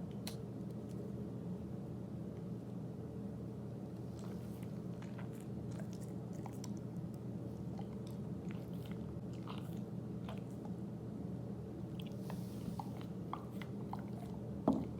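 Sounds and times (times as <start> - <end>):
dog gnawing on a chew: 4.0 - 10.8.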